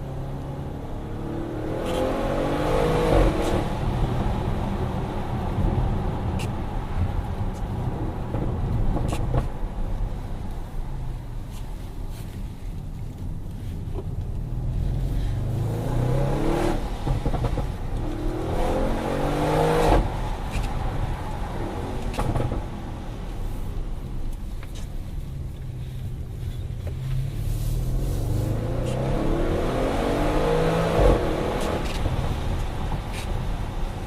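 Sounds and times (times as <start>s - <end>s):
car engine accelerating hard: 0.0s - 5.9s, 14.6s - 20.7s, 27.0s - 33.2s.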